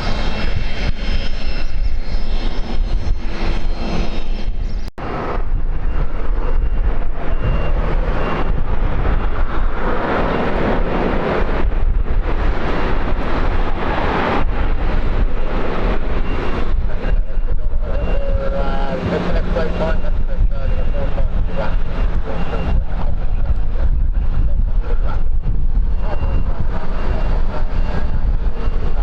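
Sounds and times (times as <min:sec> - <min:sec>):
aircraft engines roaring: 0:00.0 - 0:29.0
wind buffeting microphone: 0:00.0 - 0:29.0.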